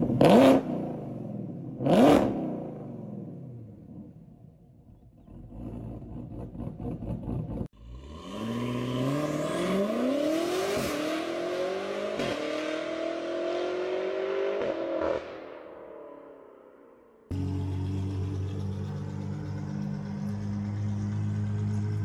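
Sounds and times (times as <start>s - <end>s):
car accelerating through gears: 7.9s - 15.2s
car engine rumbling unevenly: 17.3s - 22.0s.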